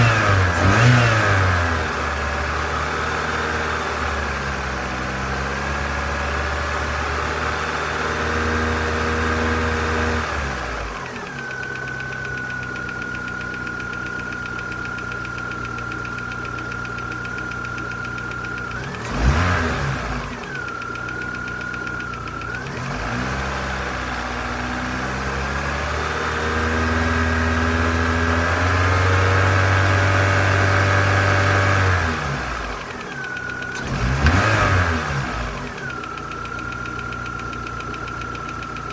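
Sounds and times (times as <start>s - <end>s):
engine revs blipped: 0.0s - 3.2s, 8.5s - 38.9s
car engine running: 0.0s - 38.9s
engine ticking: 10.5s - 24.5s, 32.1s - 38.9s.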